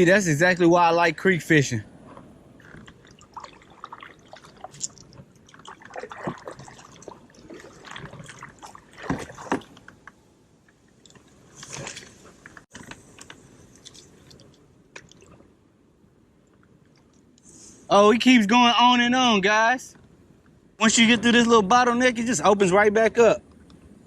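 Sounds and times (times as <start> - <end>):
water sloshing and splashing: 2.0 - 17.4.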